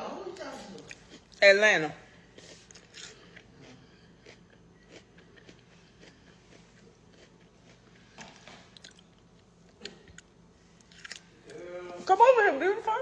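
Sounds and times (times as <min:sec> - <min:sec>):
chewing and mouth sounds: 0:00.8 - 0:01.4, 0:02.3 - 0:11.6.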